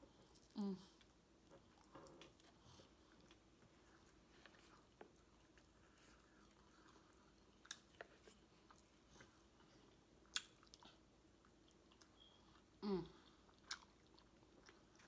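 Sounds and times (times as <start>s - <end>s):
faint chewing: 0.0s - 15.0s.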